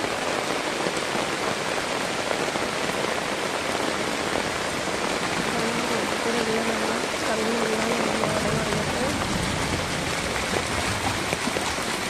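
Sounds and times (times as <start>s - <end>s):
heavy rain pouring: 0.0s - 12.0s
water rushing along a drain: 0.0s - 12.0s.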